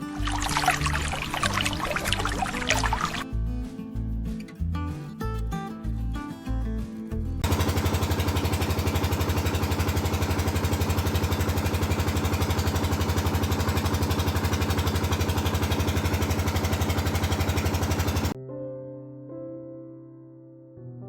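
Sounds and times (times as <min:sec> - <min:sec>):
tractor engine idling: 0:07.4 - 0:18.4.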